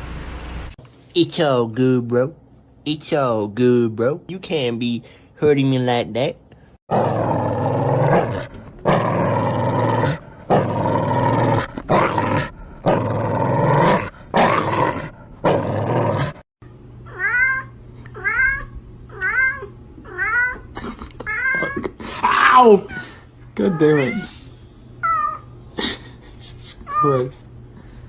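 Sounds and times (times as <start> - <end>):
cat growling yowls: 17.1 - 24.3
cat meowing: 17.1 - 24.4.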